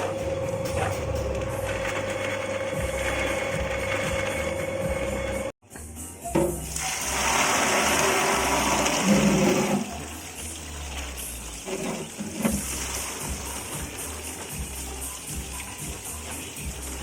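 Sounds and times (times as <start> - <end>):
water gushing and splashing: 6.7 - 17.0.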